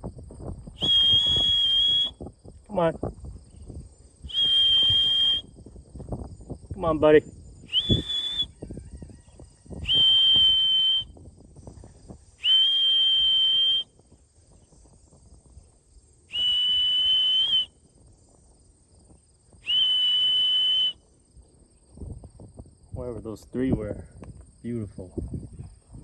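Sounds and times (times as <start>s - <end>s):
high-pitched whistle blasts: 0.8s - 2.2s, 4.2s - 5.5s, 7.6s - 8.8s, 9.8s - 11.2s, 12.4s - 13.9s, 16.3s - 17.8s, 19.6s - 21.0s.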